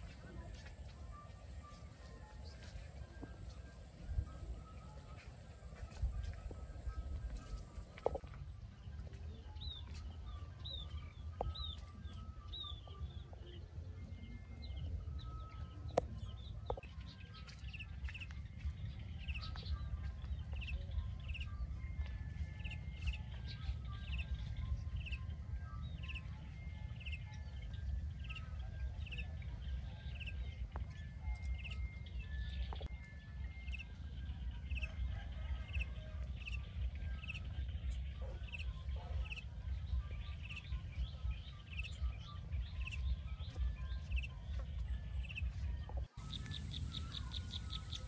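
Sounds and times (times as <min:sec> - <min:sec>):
bird chirping: 0:46.1 - 0:48.0.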